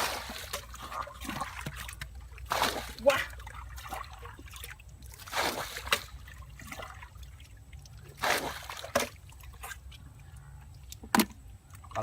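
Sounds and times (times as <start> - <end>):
sharp splash: 0.0 - 7.1, 8.2 - 9.2
water trickling and splashing: 0.0 - 12.0.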